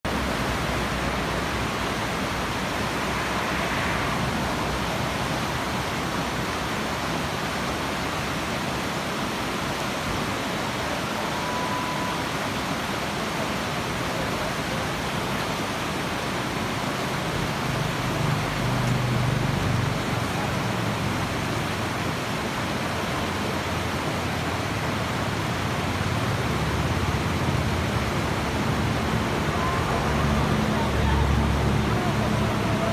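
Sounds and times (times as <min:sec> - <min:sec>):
river rapids rushing: 0:00.1 - 0:32.9
low rumbling swells: 0:00.9 - 0:06.4.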